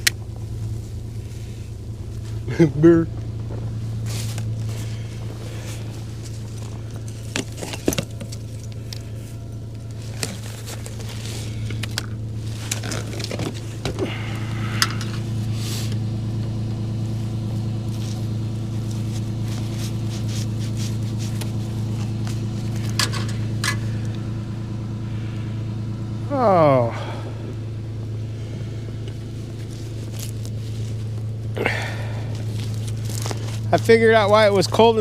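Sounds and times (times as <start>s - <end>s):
vehicle engine idling: 0.0s - 35.0s.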